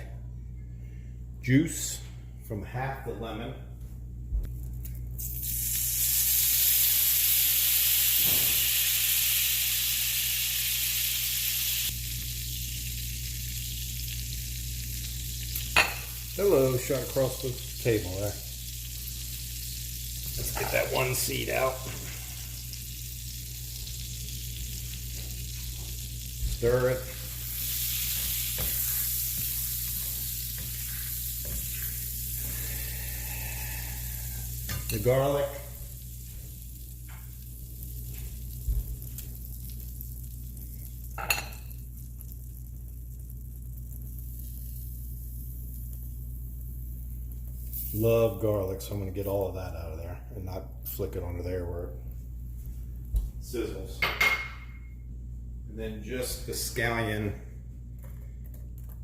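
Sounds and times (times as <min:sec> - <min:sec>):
butter sizzling in a pan: 0:05.2 - 0:48.6.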